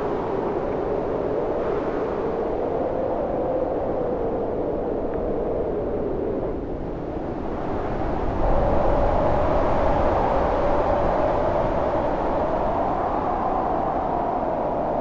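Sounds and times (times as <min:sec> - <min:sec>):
storm wind howling: 0:00.0 - 0:15.0.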